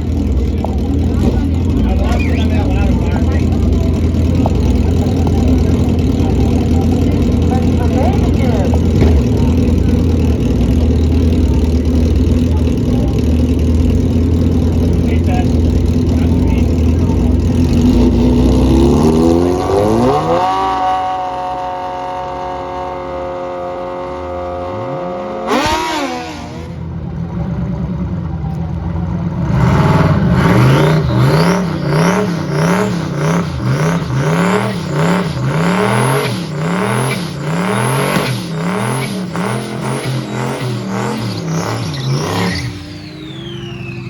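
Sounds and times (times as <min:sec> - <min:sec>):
race car engine accelerating: 0:00.0 - 0:44.0
engine revving up and down: 0:14.3 - 0:26.9, 0:29.3 - 0:44.0.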